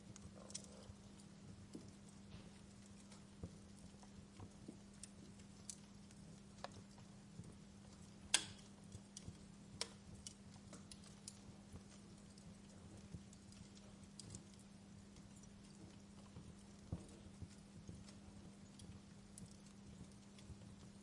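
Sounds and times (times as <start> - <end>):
steady low hum: 0.0 - 21.0
wood fire crackling: 0.0 - 21.0.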